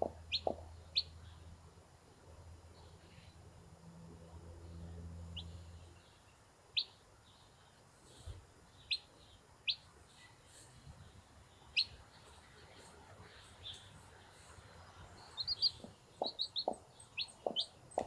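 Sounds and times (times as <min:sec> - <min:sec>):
chicks peeping: 0:00.0 - 0:01.4, 0:05.4 - 0:18.0.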